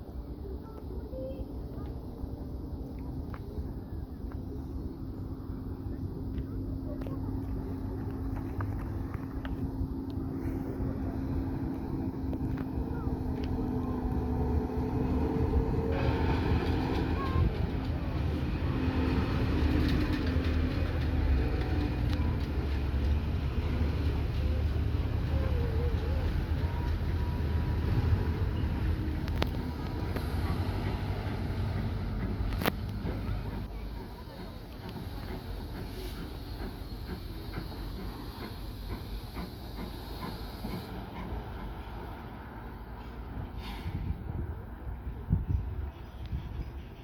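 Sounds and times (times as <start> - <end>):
steam locomotive rumble: 0.0 - 47.0
steam hiss: 33.4 - 42.2, 43.0 - 44.2.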